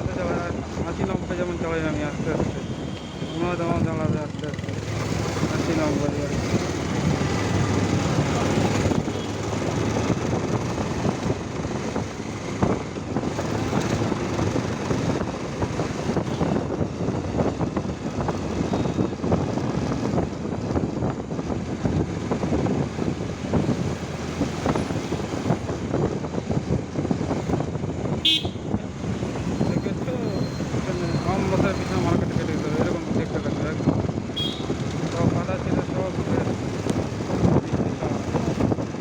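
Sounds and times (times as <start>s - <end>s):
road noise: 0.0s - 39.0s
motorcycle engine: 2.8s - 16.8s.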